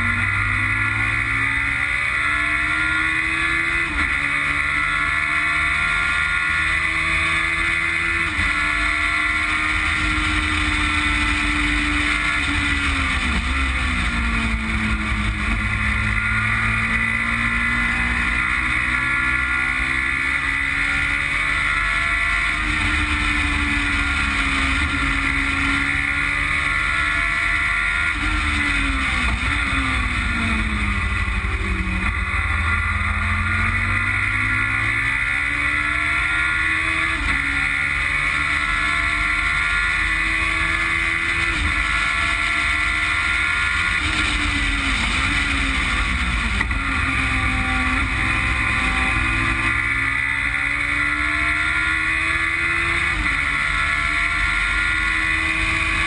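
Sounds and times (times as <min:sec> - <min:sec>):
engine revving through gears: 0:00.0 - 0:56.0.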